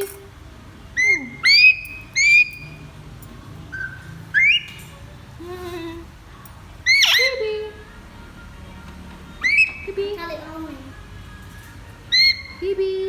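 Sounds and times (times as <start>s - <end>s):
parrot whistling: 1.0s - 2.9s, 3.7s - 4.9s, 6.8s - 7.5s, 9.4s - 10.0s, 12.1s - 12.7s.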